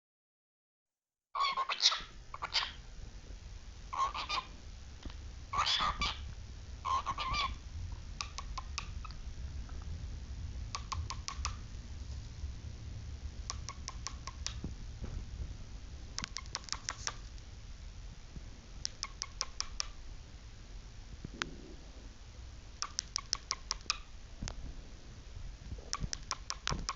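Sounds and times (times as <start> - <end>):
cockatiel chirping: 1.4 - 2.8, 3.9 - 4.5, 5.5 - 7.6, 8.2 - 9.2, 10.7 - 11.6, 13.5 - 14.6, 16.2 - 17.2, 18.8 - 20.0, 22.8 - 24.1, 26.0 - 26.9
sharp clicking bursts: 8.2 - 9.2, 10.7 - 11.6, 13.4 - 14.7, 16.2 - 17.4, 18.8 - 20.0, 22.8 - 24.1, 25.9 - 26.9.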